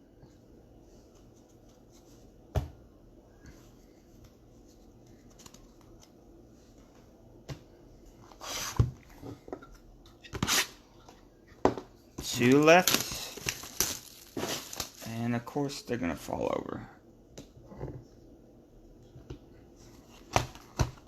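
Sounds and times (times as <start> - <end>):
cards rustling: 12.2 - 15.1.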